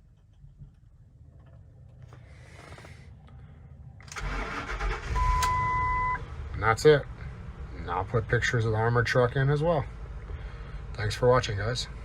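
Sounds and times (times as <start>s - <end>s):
truck engine cranking and starting: 4.0s - 6.1s
electronic warning beep: 5.0s - 6.2s.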